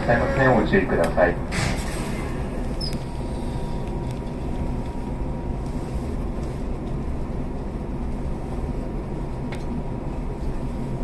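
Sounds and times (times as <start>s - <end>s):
train interior hum and rumble: 0.0s - 11.0s.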